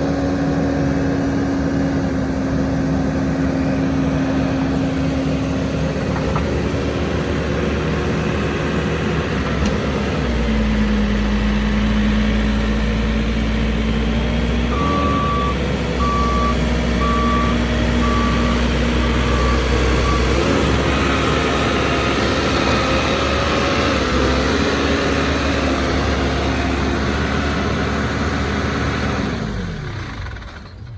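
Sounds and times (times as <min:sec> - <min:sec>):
diesel engine running: 0:00.0 - 0:30.9
reversing alarm beeps: 0:14.7 - 0:18.6, 0:19.2 - 0:20.7.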